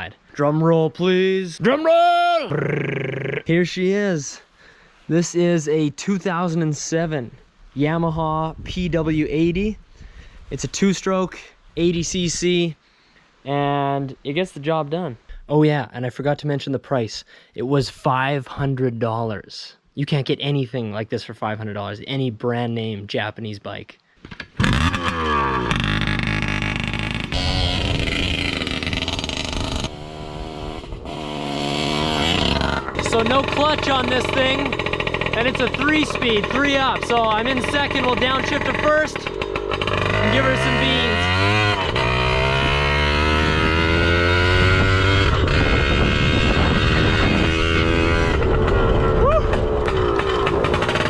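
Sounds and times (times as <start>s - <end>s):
two-stroke motorbike engine revving: 24.6s - 51.0s.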